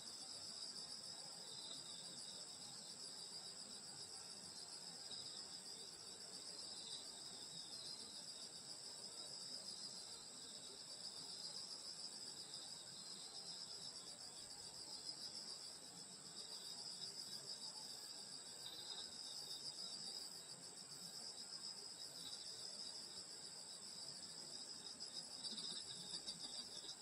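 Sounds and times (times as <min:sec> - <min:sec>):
crickets chirring: 0:11.1 - 0:27.0.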